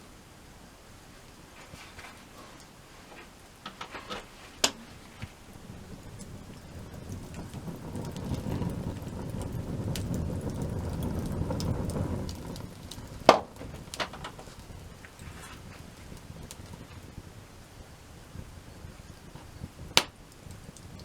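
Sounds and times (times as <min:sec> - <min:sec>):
wood fire crackling: 0:00.9 - 0:21.0
low rumble: 0:05.4 - 0:15.0
loud sharp pop: 0:13.3 - 0:14.4, 0:20.0 - 0:20.2.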